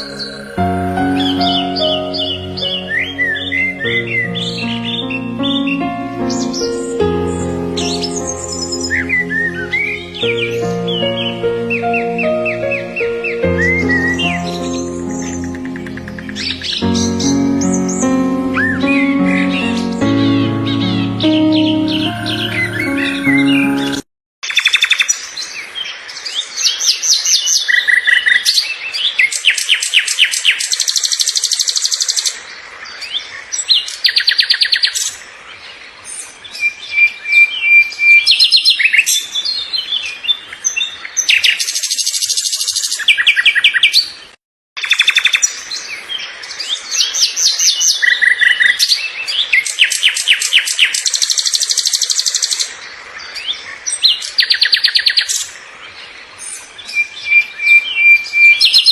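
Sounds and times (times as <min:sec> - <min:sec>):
songbirds chirping and trilling: 0:00.0 - 0:24.0.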